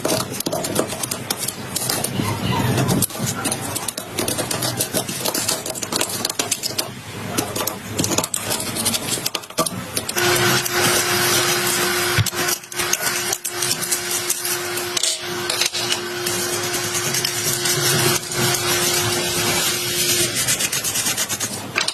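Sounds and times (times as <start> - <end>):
small motorized tool running: 10.1 - 21.3.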